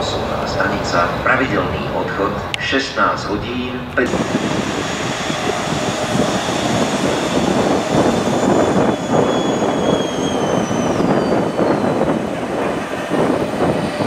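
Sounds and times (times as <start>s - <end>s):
train wheels rumbling on rails: 3.8s - 14.0s
high whine falling in pitch: 4.0s - 14.0s.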